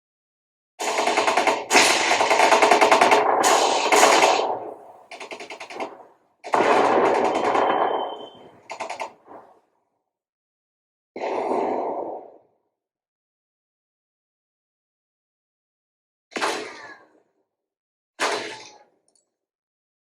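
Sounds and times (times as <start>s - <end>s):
machine-gun fire bursts: 0.8s - 9.6s.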